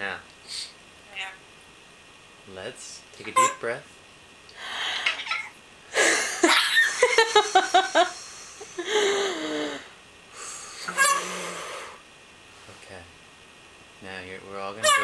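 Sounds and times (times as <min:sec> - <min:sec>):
person breathing deeply: 0:04.6 - 0:05.1, 0:05.9 - 0:06.4, 0:08.0 - 0:12.0
person laughing: 0:06.0 - 0:09.9
sighing exhale: 0:08.2 - 0:12.0.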